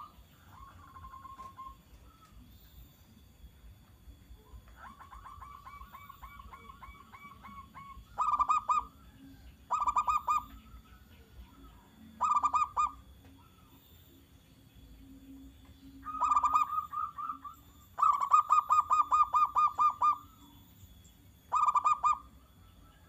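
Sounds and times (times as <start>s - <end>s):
dove cooing: 0.0s - 2.5s, 4.4s - 13.9s, 15.8s - 20.6s, 21.5s - 23.0s.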